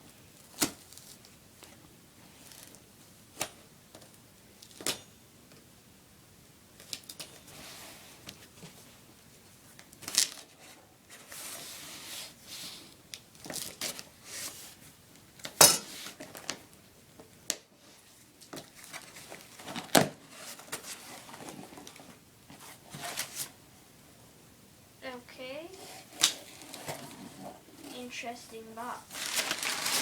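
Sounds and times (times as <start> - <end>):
cardboard scraping and tearing: 29.1 - 30.0.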